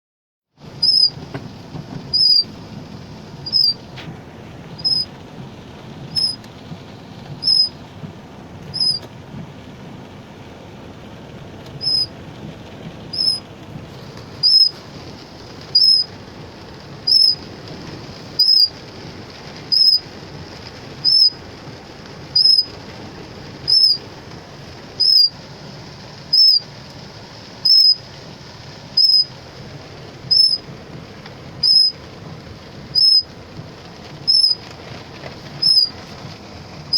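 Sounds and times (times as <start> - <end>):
short high chirp: 0.8 - 1.1, 2.2 - 2.4, 3.5 - 3.8, 4.8 - 5.1, 6.2 - 6.4, 8.8 - 9.0, 11.8 - 12.1, 13.2 - 13.4, 17.1 - 17.4, 18.4 - 18.7, 35.6 - 35.9.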